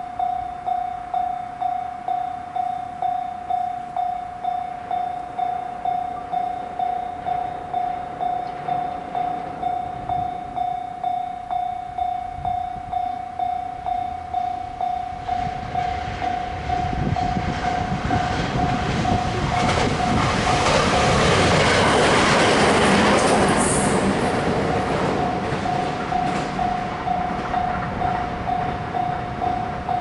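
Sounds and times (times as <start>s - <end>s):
warning bell dinging: 0.0s - 20.4s, 23.8s - 30.0s
electric train passing: 0.0s - 30.0s
wheels clattering on rail joints: 4.7s - 11.6s, 14.1s - 30.0s.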